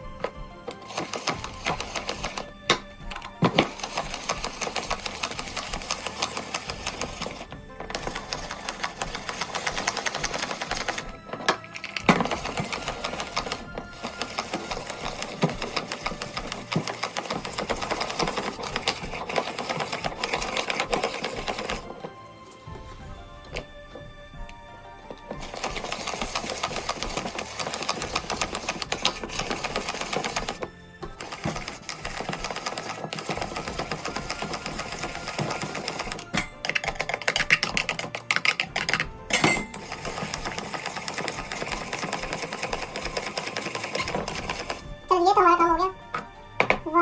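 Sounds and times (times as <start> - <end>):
blade rattling through vegetables: 0.0 - 22.2, 25.3 - 45.5
blender running: 39.6 - 45.0.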